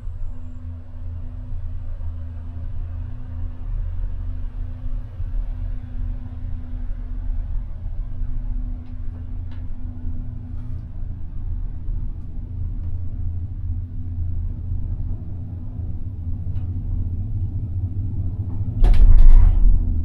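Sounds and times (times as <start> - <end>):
gondola lift machinery rumbling: 0.0 - 20.0.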